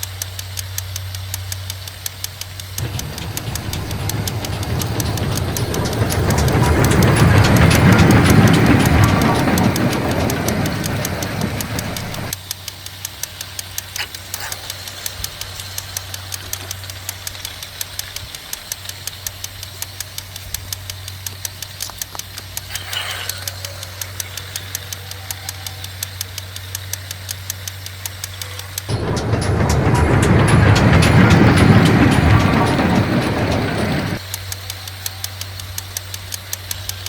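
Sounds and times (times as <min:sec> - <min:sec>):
regular clicking: 0:00.0 - 0:37.0.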